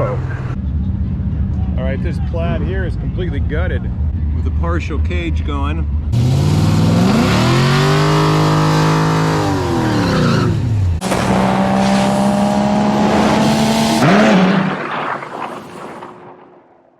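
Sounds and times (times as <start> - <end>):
race cars at full throttle: 0.0 - 16.4.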